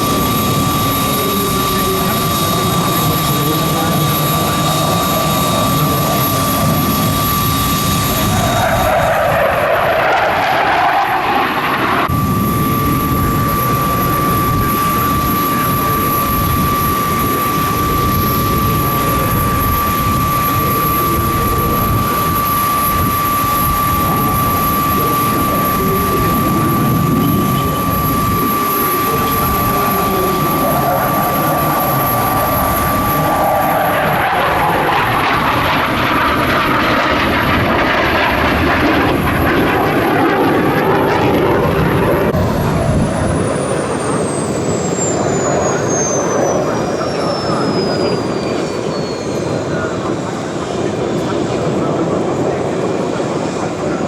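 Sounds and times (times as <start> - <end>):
helicopter flying with high whine: 0.0 - 54.0.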